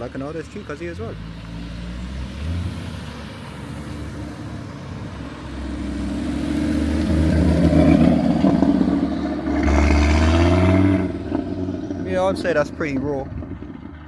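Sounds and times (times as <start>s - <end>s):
car engine driving past: 1.1s - 14.0s.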